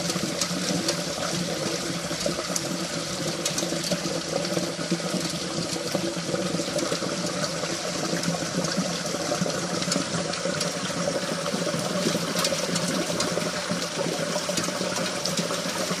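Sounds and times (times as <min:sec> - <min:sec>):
water streaming off roof: 0:00.0 - 0:16.0.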